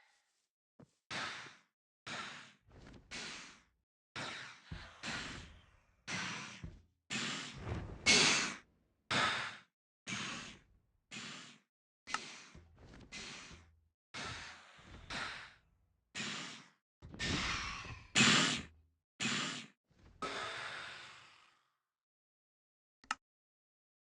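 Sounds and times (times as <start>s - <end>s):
person breathing hard: 1.1s - 15.6s, 16.2s - 21.8s.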